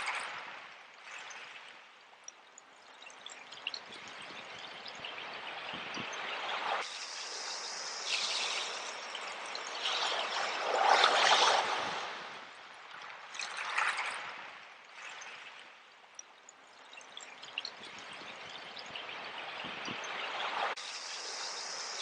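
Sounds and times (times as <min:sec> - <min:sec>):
trickling water: 0:00.0 - 0:22.0
small waves washing on shore: 0:03.7 - 0:15.9.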